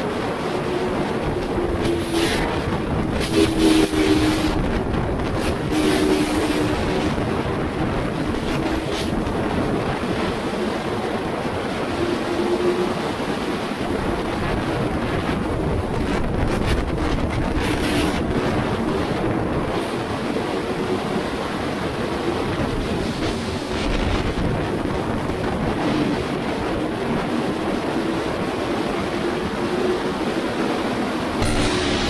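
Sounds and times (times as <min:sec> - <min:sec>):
wind rushing over microphone: 0:00.0 - 0:32.0
motorcycle engine drone: 0:31.4 - 0:32.0.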